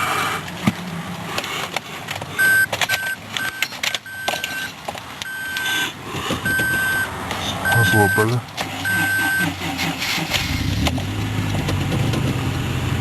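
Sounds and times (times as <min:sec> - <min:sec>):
clicks: 0:00.6 - 0:05.7
high electronic beeps: 0:02.4 - 0:04.7, 0:06.5 - 0:09.5.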